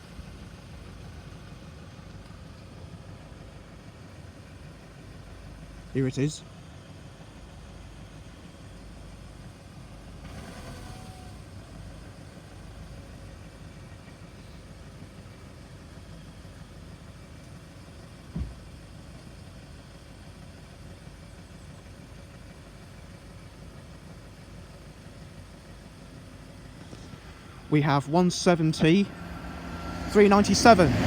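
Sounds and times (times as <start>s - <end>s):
short thump: 18.3s - 18.6s
diesel train passing: 20.2s - 31.0s.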